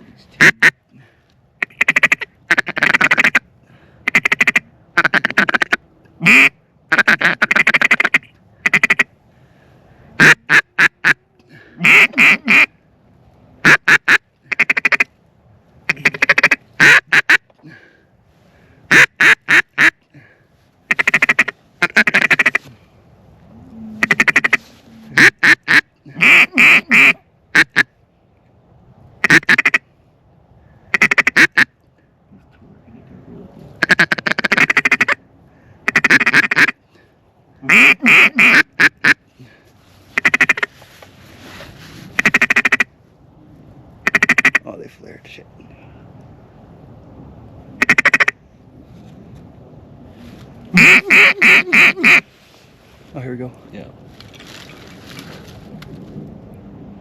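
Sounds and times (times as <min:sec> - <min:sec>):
duck call quacks: 0:00.4 - 0:00.8, 0:01.6 - 0:03.4, 0:04.0 - 0:09.1, 0:10.2 - 0:12.7, 0:13.6 - 0:15.1, 0:15.9 - 0:17.4, 0:18.9 - 0:20.0, 0:20.9 - 0:22.7, 0:24.0 - 0:27.9, 0:29.2 - 0:29.8, 0:30.9 - 0:31.7, 0:33.8 - 0:35.2, 0:35.8 - 0:36.8, 0:37.6 - 0:39.2, 0:40.2 - 0:40.7, 0:42.2 - 0:42.9, 0:44.0 - 0:44.6, 0:47.8 - 0:48.4, 0:50.7 - 0:52.3.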